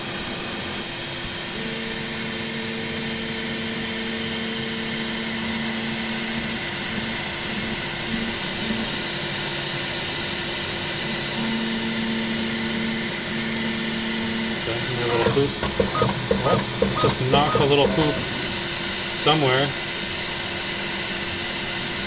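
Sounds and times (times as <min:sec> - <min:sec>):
fans whirring: 0:14.5 - 0:19.8
stepper motors humming: 0:14.6 - 0:19.0.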